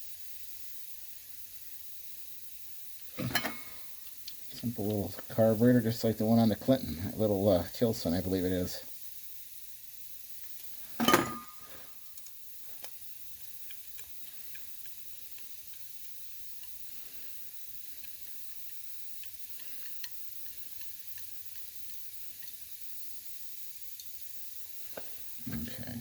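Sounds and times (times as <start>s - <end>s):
metal part clinking: 3.2s - 3.8s, 11.0s - 11.7s
small parts ticking: 12.1s - 22.8s.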